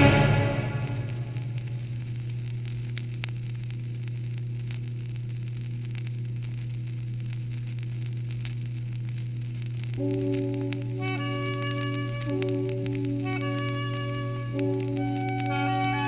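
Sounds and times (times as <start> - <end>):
low orchestral drone: 0.0 - 1.5
vinyl record surface clicks: 1.4 - 16.0
faint held tones: 9.9 - 16.0.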